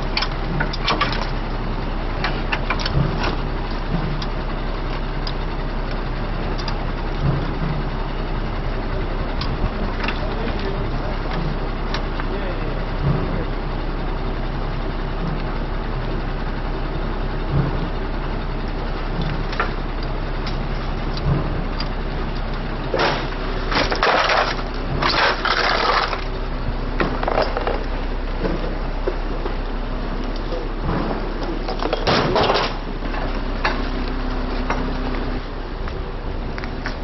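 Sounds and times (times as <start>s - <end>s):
knocks and clanks: 0.0s - 1.4s, 2.2s - 5.1s, 6.6s - 8.0s, 12.9s - 13.6s, 17.4s - 18.1s, 19.1s - 29.6s, 30.2s - 37.0s
heavy vehicle engine idling: 0.0s - 37.0s
loud harsh crunching: 22.9s - 26.4s.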